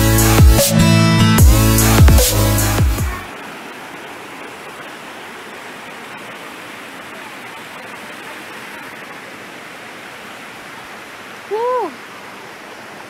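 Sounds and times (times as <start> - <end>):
running water: 1.3 - 13.0.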